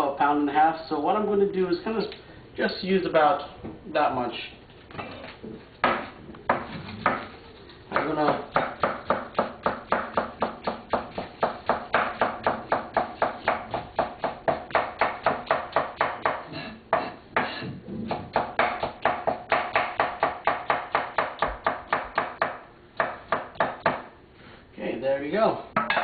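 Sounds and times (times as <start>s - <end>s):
knife chopping on cutting board: 5.8s - 7.3s, 7.9s - 24.1s.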